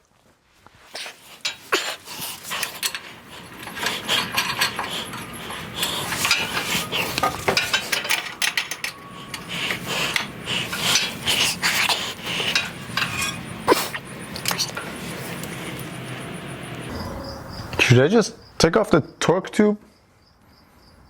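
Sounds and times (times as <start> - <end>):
metallic clinks and scraping: 1.3 - 11.8, 12.4 - 13.5.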